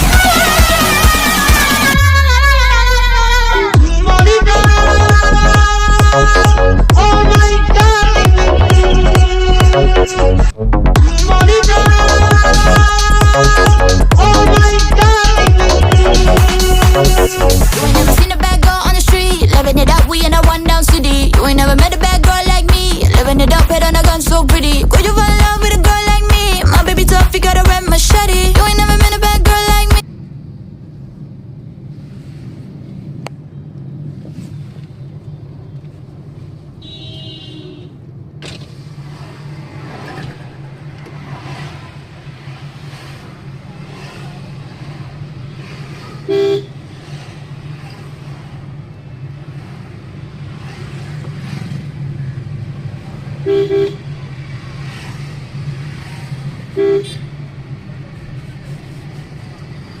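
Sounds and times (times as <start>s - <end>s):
idling engines rumbling: 0.0s - 30.0s, 38.0s - 60.0s
vehicle horn honking: 36.8s - 38.0s, 46.2s - 46.8s, 53.4s - 54.2s, 56.7s - 57.3s.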